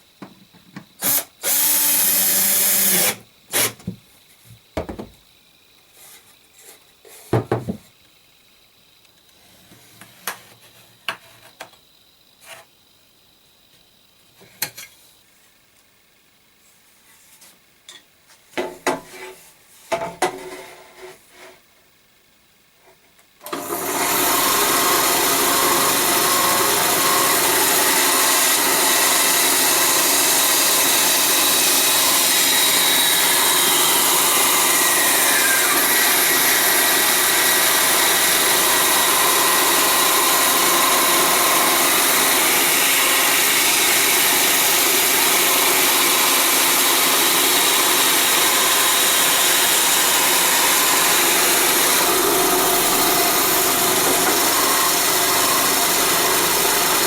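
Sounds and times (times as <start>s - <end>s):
electric power tool on wood: 1.0s - 3.8s, 23.4s - 57.0s.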